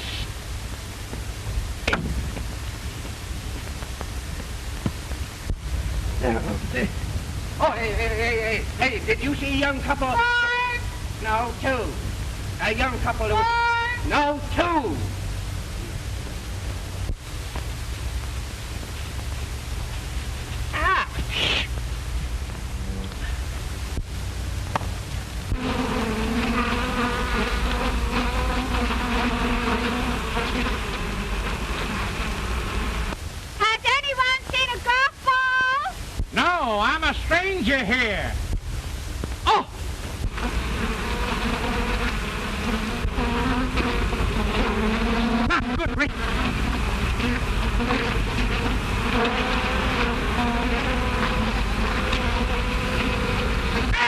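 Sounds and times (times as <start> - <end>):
bee buzzing: 24.7 - 33.2, 40.2 - 54.0.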